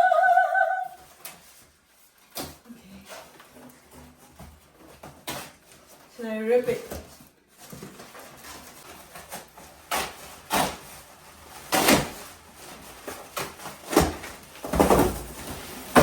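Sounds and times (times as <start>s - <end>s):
wrapping tearing: 7.9s - 14.6s.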